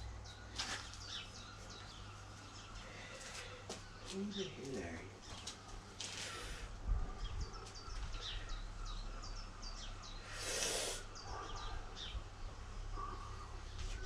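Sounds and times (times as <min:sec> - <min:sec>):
small birds chirping: 0:00.0 - 0:14.0
hissing rushes of noise: 0:10.3 - 0:11.1.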